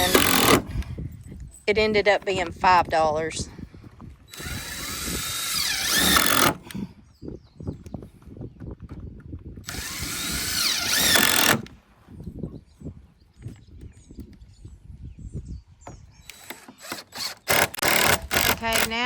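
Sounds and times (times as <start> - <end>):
power tool whining: 0.0 - 0.8, 4.3 - 6.8, 9.6 - 11.8, 16.2 - 19.0.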